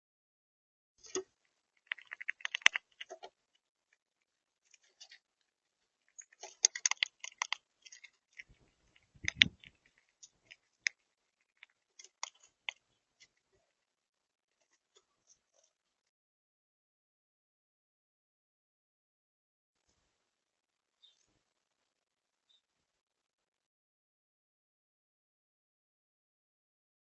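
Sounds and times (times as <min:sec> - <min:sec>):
birds cracking seed: 0:01.0 - 0:03.4, 0:06.0 - 0:13.5.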